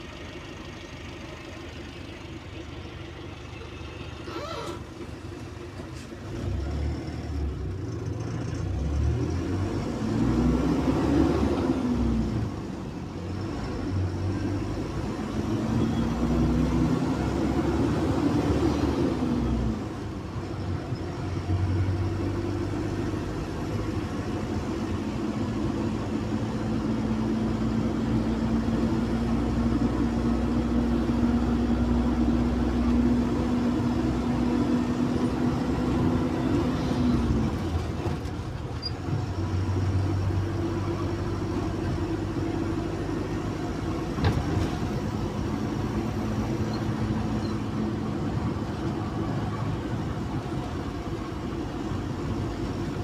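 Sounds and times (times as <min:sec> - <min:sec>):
bus engine running: 0:00.0 - 0:53.0.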